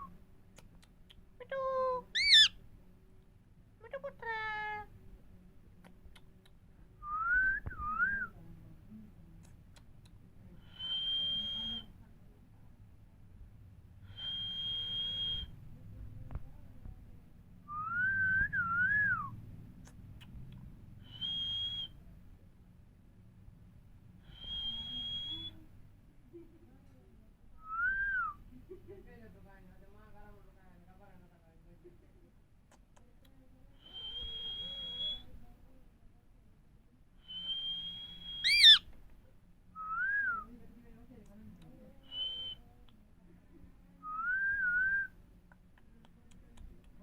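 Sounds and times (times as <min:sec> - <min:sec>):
parrot whistling: 0:02.2 - 0:02.5, 0:37.3 - 0:38.8.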